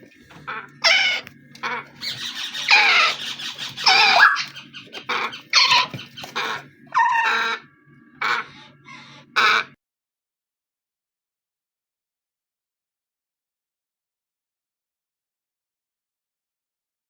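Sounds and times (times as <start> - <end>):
low steady hum: 0.0 - 9.6
parrots squawking: 0.1 - 9.8.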